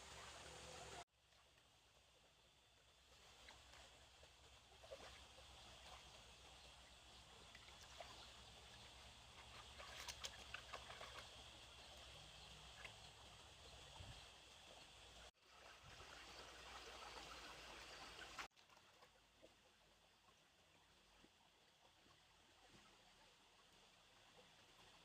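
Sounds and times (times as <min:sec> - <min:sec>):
faint trickling water: 0:00.0 - 0:25.0
small clicks and splashes: 0:03.1 - 0:13.9, 0:15.9 - 0:19.7.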